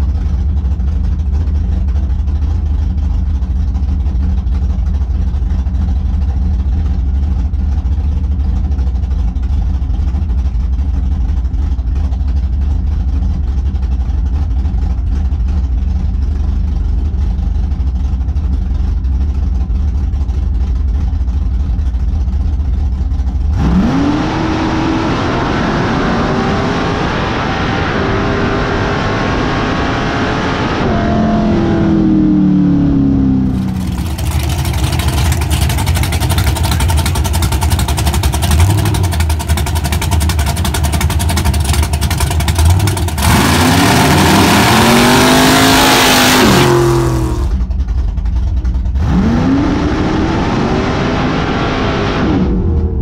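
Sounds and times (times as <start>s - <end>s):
race car engine revving: 23.4s - 47.8s, 48.8s - 53.0s.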